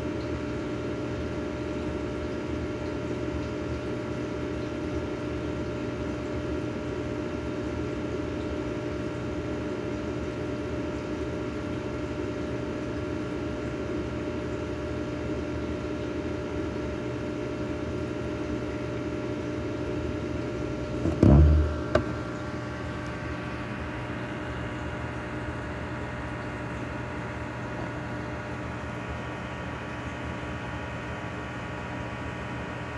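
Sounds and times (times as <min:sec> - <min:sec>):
aquarium pump humming: 0:00.0 - 0:32.9
loud low thump: 0:21.0 - 0:22.3.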